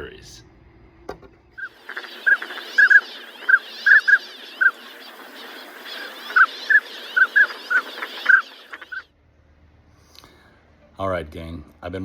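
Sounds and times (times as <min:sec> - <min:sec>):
ducks quacking: 0:01.6 - 0:09.1
other bird calls: 0:01.6 - 0:09.1.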